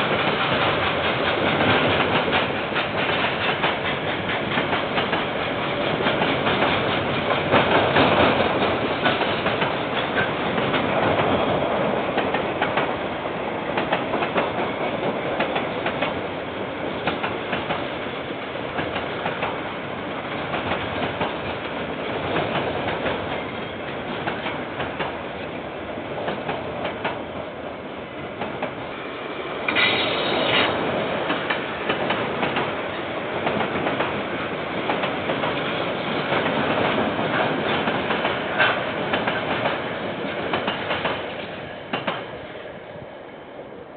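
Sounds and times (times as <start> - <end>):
train wheels clattering over rail joints: 0.0 - 13.0, 29.7 - 42.3.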